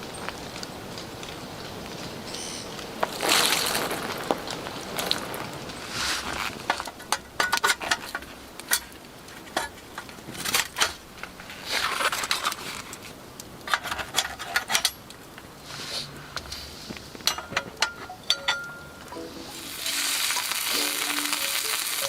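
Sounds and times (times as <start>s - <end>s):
metal cookware clinking: 6.9s - 10.0s, 17.3s - 19.1s.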